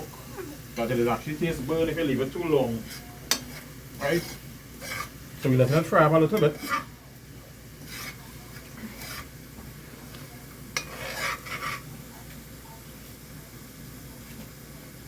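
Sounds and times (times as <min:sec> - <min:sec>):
curry sizzling in a pot: 0:00.0 - 0:15.0
spoon scraping and stirring: 0:00.8 - 0:12.4.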